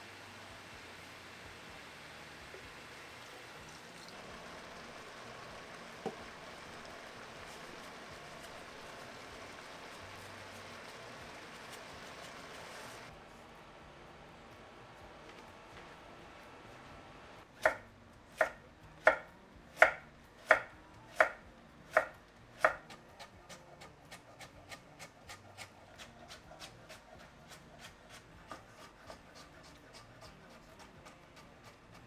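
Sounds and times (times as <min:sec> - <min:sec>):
knife chopping on cutting board: 0:17.6 - 0:32.0.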